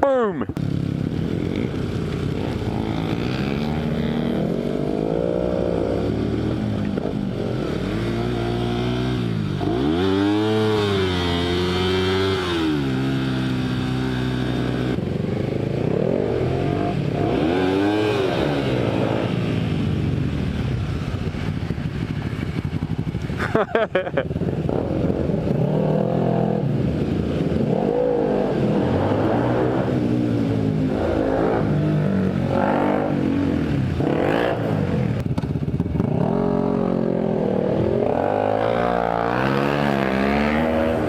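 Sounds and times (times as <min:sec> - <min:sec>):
motorcycle engine revving: 0:00.6 - 0:41.0.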